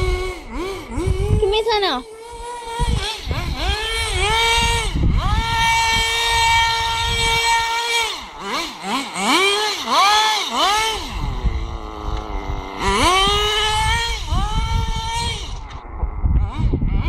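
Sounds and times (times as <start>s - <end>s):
rc car motor revving: 0.0s - 17.0s
rough low rumble: 11.0s - 17.0s.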